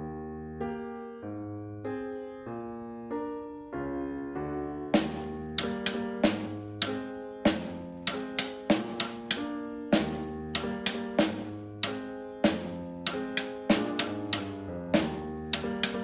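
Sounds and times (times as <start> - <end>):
sharp drum hits: 5.0 - 16.0
sustained keyboard chords: 5.0 - 16.0.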